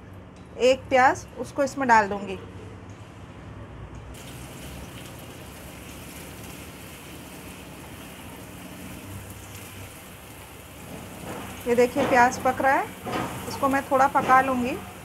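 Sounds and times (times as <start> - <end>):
onion paste sizzling in oil: 4.2 - 15.0.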